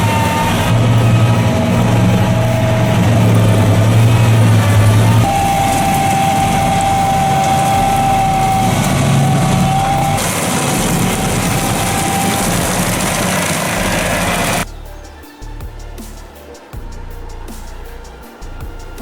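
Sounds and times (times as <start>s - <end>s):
heavy machine engine running: 0.0s - 14.7s
high steady whine: 0.0s - 15.0s.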